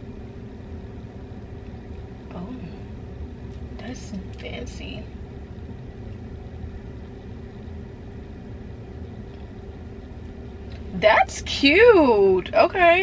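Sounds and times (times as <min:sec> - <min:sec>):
car rumble from inside cabin: 0:00.0 - 0:13.0.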